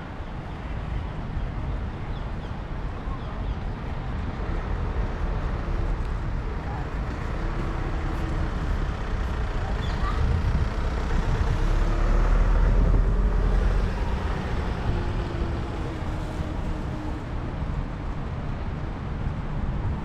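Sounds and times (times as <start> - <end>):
road traffic rumbling: 0.0 - 20.0
vehicle passing: 6.9 - 18.8.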